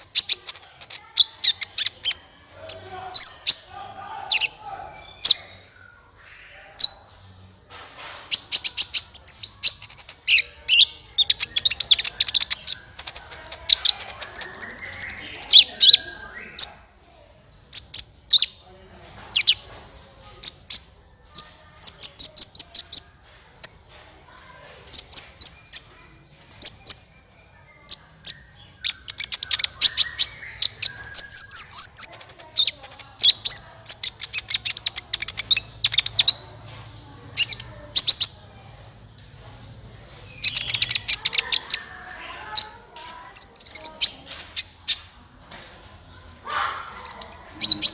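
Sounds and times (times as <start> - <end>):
sunbird chirps and trills: 0.0 - 7.5, 8.3 - 18.6, 19.3 - 39.0, 40.2 - 45.0.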